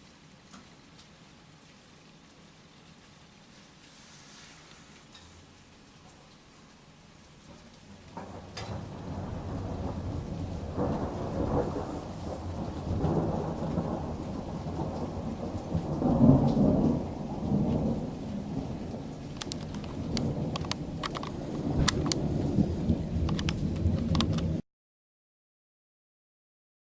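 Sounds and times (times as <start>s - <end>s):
rain falling: 0.0s - 24.6s
thunder rumbling: 7.5s - 24.6s.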